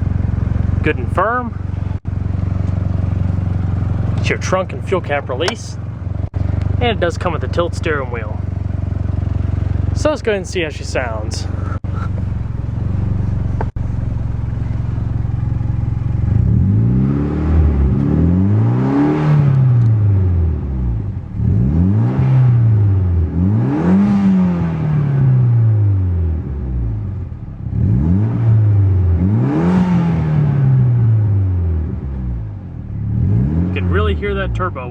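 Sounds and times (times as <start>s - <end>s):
car engine idling and revving: 0.0s - 34.9s.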